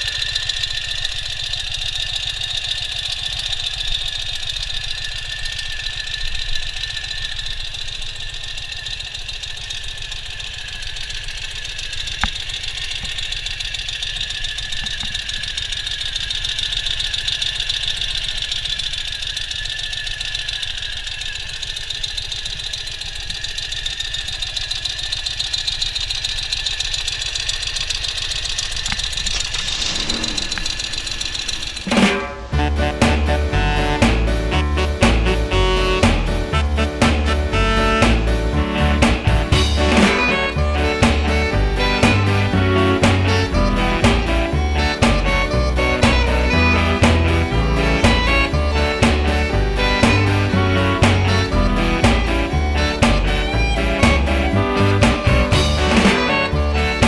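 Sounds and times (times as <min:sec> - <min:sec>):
motorcycle engine running: 0:29.3 - 0:57.0.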